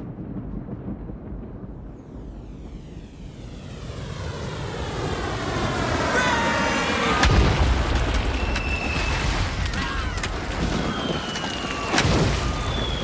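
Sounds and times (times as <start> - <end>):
heavy booms: 0.0 - 4.2, 7.1 - 11.1
rumbling wash of noise: 0.0 - 13.0.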